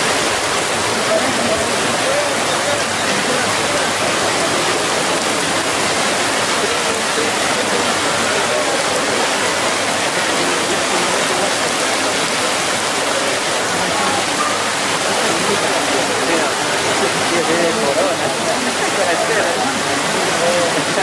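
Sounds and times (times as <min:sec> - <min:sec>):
heavy rain: 0:00.0 - 0:21.0.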